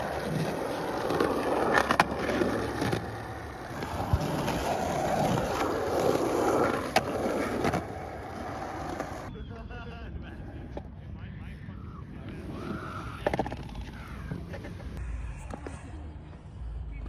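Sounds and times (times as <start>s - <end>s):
skateboard clacks: 0.0s - 9.3s
skateboard wheels rolling on concrete: 0.0s - 9.3s, 12.2s - 16.6s.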